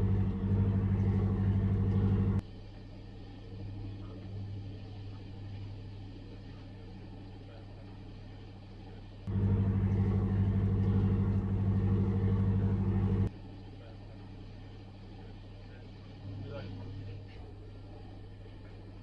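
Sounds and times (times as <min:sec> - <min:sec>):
low engine hum: 0:00.0 - 0:02.4, 0:09.3 - 0:13.3
ship's horn blast: 0:09.3 - 0:13.3.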